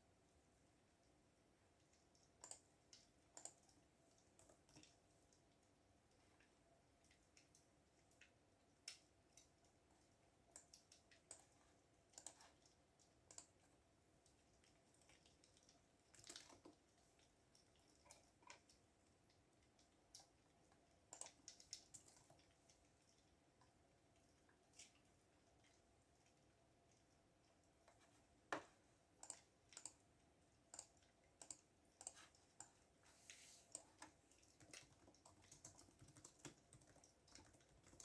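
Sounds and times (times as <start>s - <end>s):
faint steady hum: 0.0s - 38.0s
keyboard typing: 2.4s - 2.7s, 30.7s - 32.8s, 33.7s - 38.0s.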